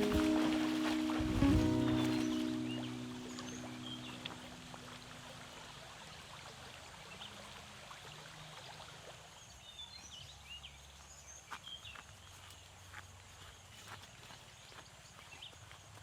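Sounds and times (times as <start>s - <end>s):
low outdoor hiss: 0.0s - 11.4s.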